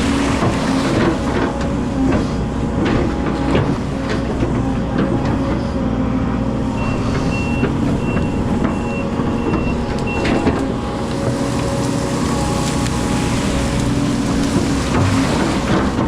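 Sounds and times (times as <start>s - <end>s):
excavator diesel engine running: 0.0s - 16.0s
reversing alarm beeps: 6.8s - 10.4s.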